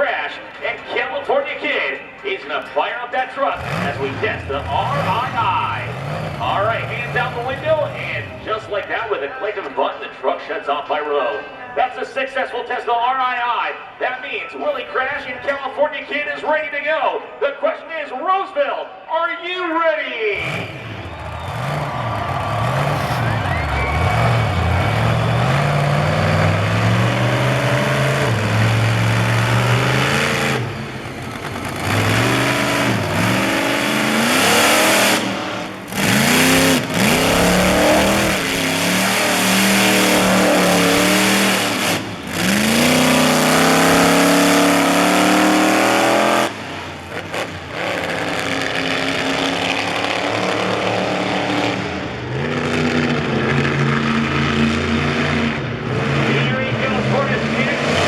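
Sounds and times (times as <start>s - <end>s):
monster truck engine revving: 3.2s - 9.0s, 20.3s - 58.0s.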